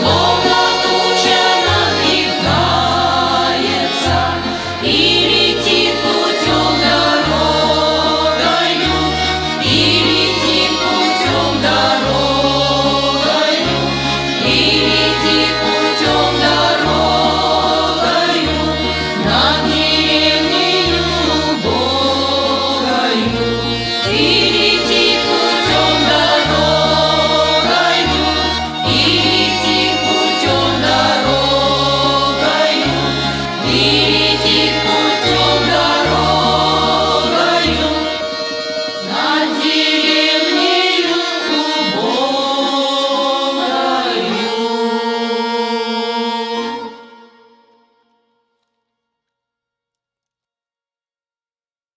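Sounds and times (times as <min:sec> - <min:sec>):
choir singing: 0:00.0 - 0:47.8
instrumental accompaniment: 0:00.0 - 0:48.8.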